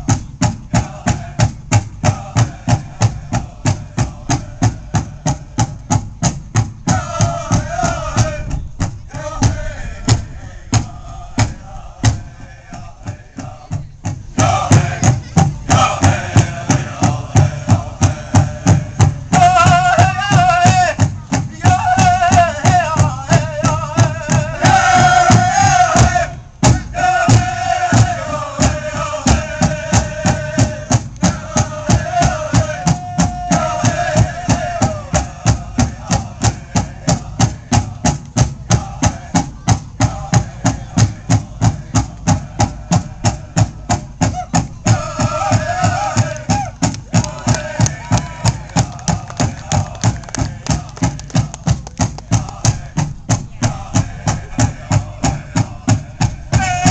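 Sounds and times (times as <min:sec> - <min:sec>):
powwow drum beating: 0:00.0 - 0:56.9
high-pitched chanted singing: 0:53.6 - 0:56.9.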